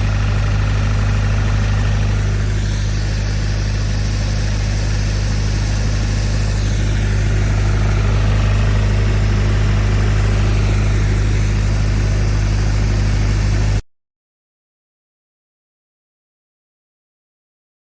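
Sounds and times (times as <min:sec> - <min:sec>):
hiss: 0:00.0 - 0:13.8
pressure washer engine droning: 0:00.0 - 0:13.8.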